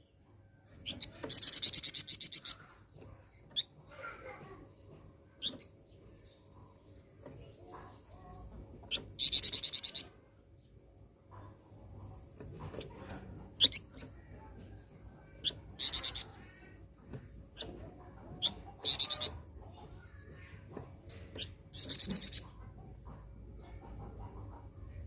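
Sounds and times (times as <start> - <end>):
songbird rattling trills: 7.1 - 10.2, 13.1 - 14.8, 15.4 - 22.6.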